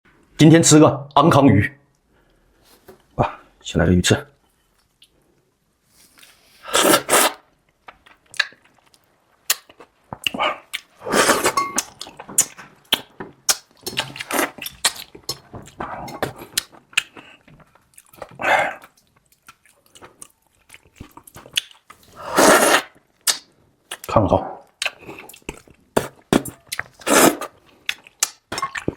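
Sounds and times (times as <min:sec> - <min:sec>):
slurping: 0:06.2 - 0:07.4, 0:10.2 - 0:13.0, 0:22.1 - 0:23.0, 0:26.0 - 0:27.6
person chewing wetly: 0:06.8 - 0:22.0, 0:24.8 - 0:28.9.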